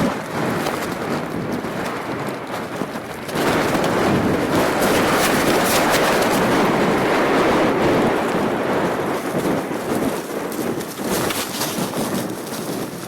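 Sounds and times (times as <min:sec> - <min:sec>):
blizzard wind on microphone: 0:00.0 - 0:13.0
scattered ticks: 0:09.1 - 0:13.0.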